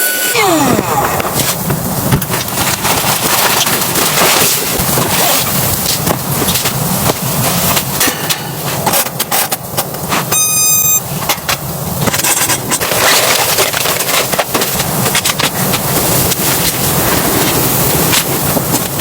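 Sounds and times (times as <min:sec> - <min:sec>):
short high tone: 0:00.0 - 0:01.2, 0:10.3 - 0:11.0
strong wind blowing: 0:00.0 - 0:10.2, 0:11.0 - 0:19.0
sharp cracks and flaps: 0:00.8 - 0:10.3, 0:11.2 - 0:19.0.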